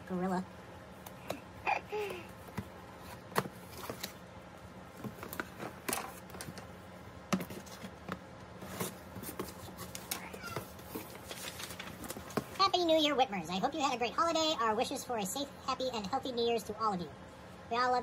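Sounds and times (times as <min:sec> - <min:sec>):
packaging rustling and crinkling: 0:07.4 - 0:12.6.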